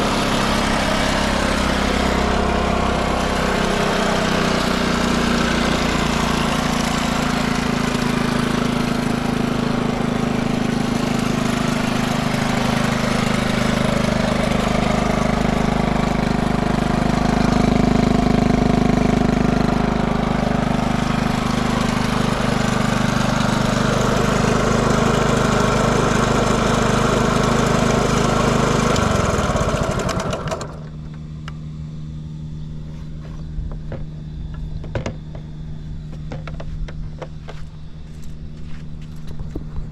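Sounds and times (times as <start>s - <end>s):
motorcycle engine idling: 4.2s - 31.1s.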